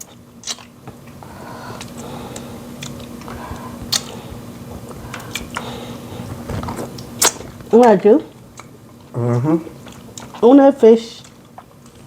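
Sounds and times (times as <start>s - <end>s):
faint steady hum: 0.0s - 12.0s
mouth clicks and wet smacks: 2.8s - 4.2s.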